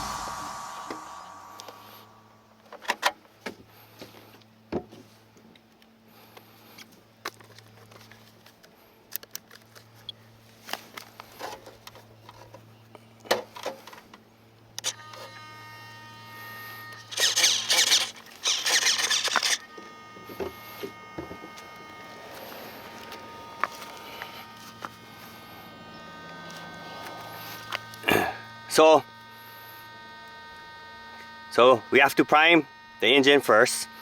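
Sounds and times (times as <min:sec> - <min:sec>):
rushing hissing noise: 0:00.0 - 0:02.6
steady low hum: 0:00.0 - 0:02.7, 0:19.2 - 0:28.7.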